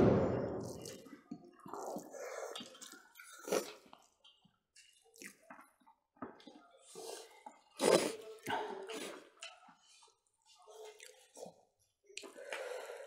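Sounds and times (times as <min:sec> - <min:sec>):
people chewing with wet mouth sounds: 0:00.6 - 0:13.0.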